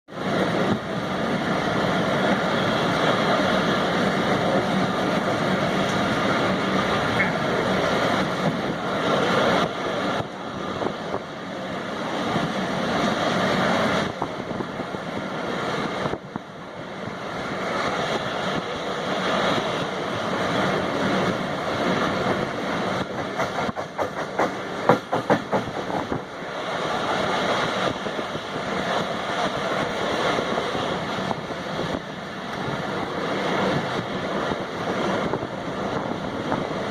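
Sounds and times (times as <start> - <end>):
train passing: 0.1 - 36.9
wheels clattering over rails: 17.6 - 36.9.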